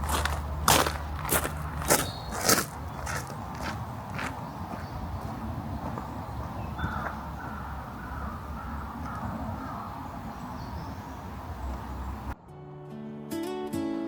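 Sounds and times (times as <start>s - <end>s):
low outdoor rumble: 0.0s - 4.5s
crows cawing: 6.7s - 10.2s.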